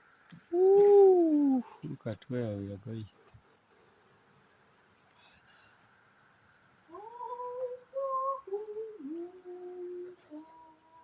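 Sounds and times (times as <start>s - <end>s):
person humming a slow tune: 0.5s - 1.7s, 6.9s - 11.0s
faint bird chirps: 5.0s - 6.2s, 6.8s - 11.0s.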